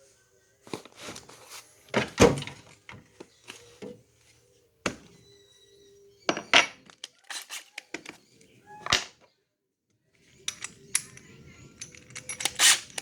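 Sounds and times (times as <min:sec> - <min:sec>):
objects knocking and thudding: 0:01.9 - 0:03.1, 0:04.9 - 0:05.2.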